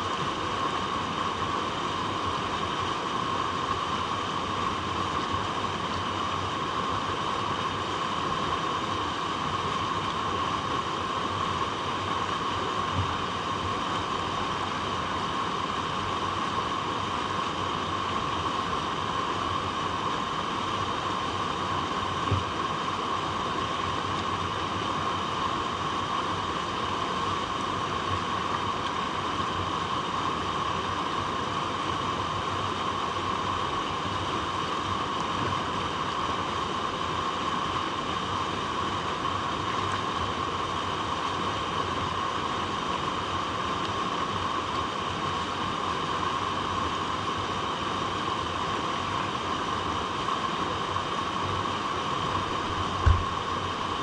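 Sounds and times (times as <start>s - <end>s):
water rushing over rocks: 0.0s - 54.0s
low knock: 53.0s - 53.4s.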